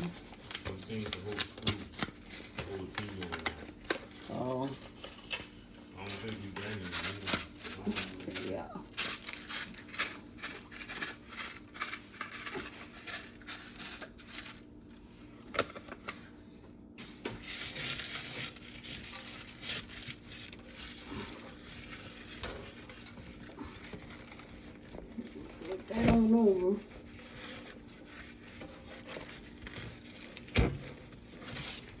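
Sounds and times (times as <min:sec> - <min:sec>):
rustling and crinkling: 0:00.0 - 0:16.4, 0:17.0 - 0:32.0.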